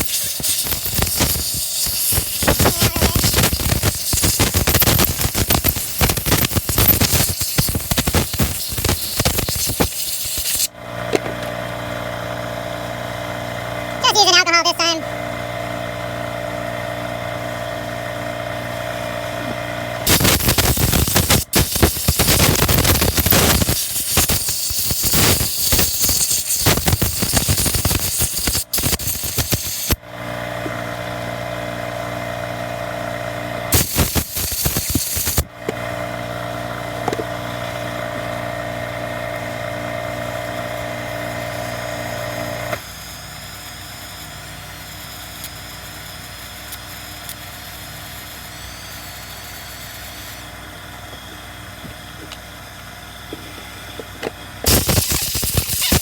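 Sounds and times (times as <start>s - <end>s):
compressed air hissing: 0.0s - 10.7s, 20.1s - 30.0s, 33.7s - 35.4s, 54.7s - 56.0s
motor hum: 28.4s - 43.3s.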